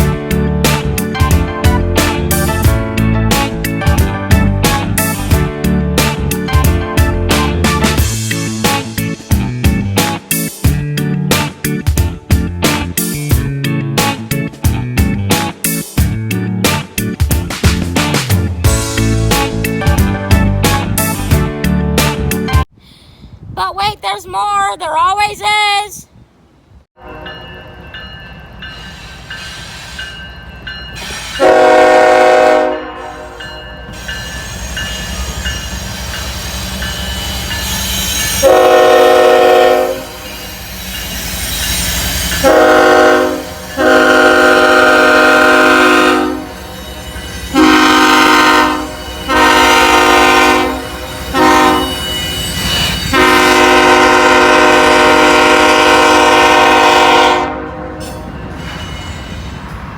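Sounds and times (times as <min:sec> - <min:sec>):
train rumble: 0:00.0 - 0:22.6, 0:26.4 - 0:59.9
locomotive air horn blasts: 0:31.4 - 0:33.4, 0:38.4 - 0:40.3, 0:42.4 - 0:46.6, 0:47.5 - 0:52.0, 0:53.1 - 0:58.1.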